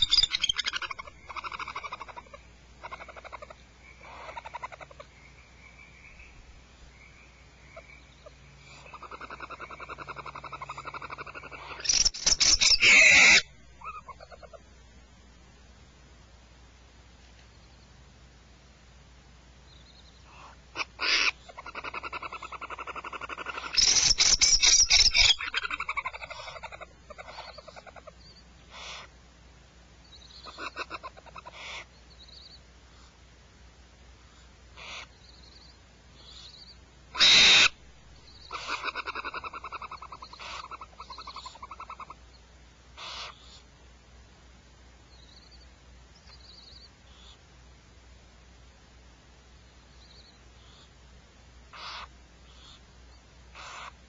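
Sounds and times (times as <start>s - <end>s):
bird rattling trilling calls: 0.0s - 5.0s, 8.9s - 14.5s, 20.8s - 28.0s, 37.2s - 37.8s, 38.4s - 42.1s.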